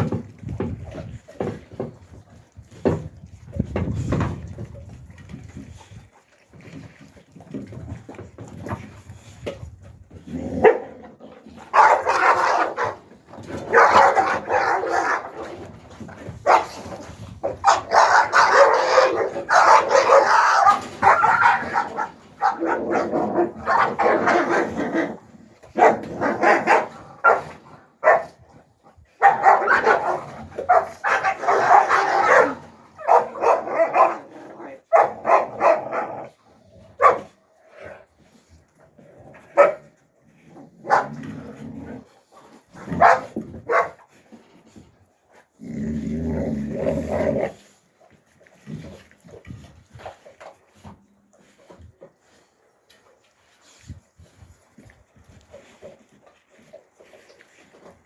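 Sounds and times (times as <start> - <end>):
puppies barking and yipping: 17.6 - 23.0.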